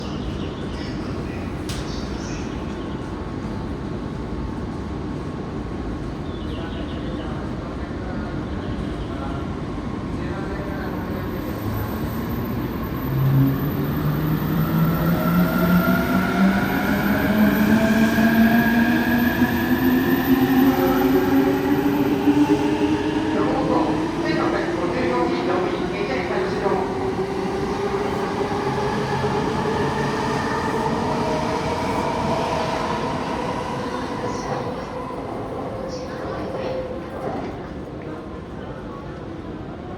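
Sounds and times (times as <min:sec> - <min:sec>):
electric train rumble: 0:09.6 - 0:37.9.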